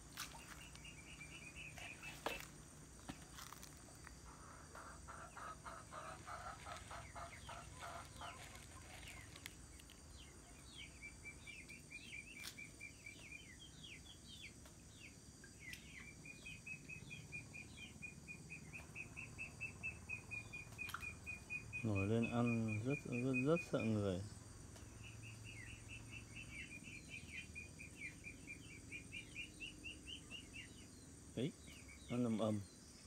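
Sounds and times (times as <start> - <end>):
faint bird calls: 0.0 - 14.0.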